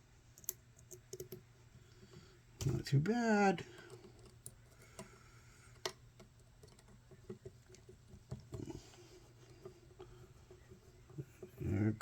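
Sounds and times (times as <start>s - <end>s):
small metal clicks: 3.8s - 8.6s.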